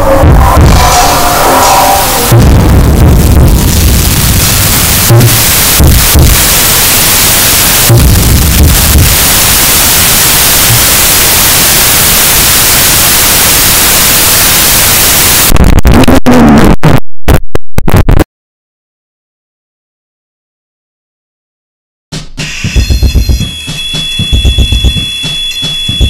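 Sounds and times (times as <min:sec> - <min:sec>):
distorted static noise music: 0:00.0 - 0:18.3, 0:22.4 - 0:26.0
stuttering cut-up bursts: 0:22.6 - 0:26.0.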